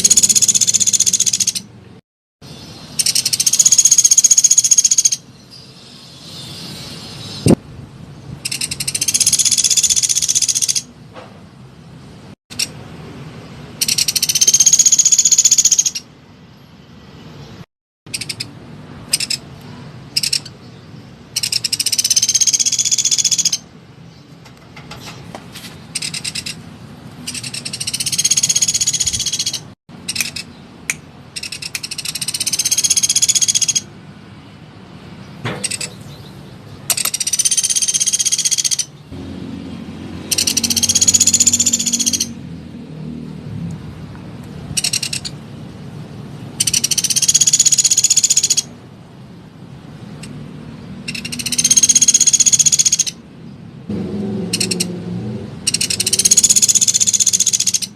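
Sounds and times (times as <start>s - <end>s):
woodpecker rapid trills: 0.0s - 1.7s, 3.0s - 5.2s, 8.4s - 10.9s, 13.8s - 16.0s, 21.3s - 23.7s, 27.3s - 30.5s, 31.4s - 33.9s, 36.9s - 39.0s, 40.3s - 42.4s, 44.8s - 45.4s, 46.6s - 48.7s, 51.0s - 53.2s, 54.5s - 54.9s, 55.7s - 57.9s.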